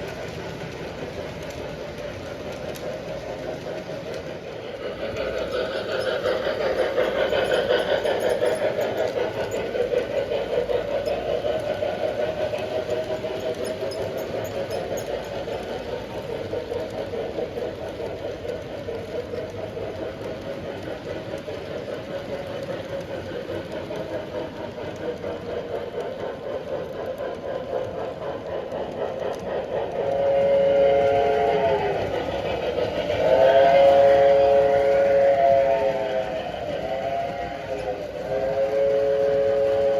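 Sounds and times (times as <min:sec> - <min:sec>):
model train rolling on track: 0:00.0 - 0:39.9
model train whistle chord: 0:30.2 - 0:31.8, 0:33.3 - 0:37.8.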